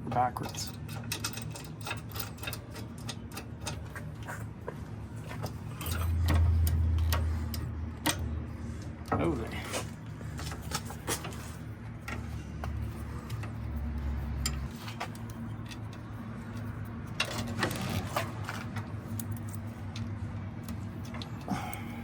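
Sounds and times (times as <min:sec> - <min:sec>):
steady low hum: 0:00.0 - 0:22.0
metal parts clinking: 0:00.2 - 0:03.8, 0:05.4 - 0:08.2.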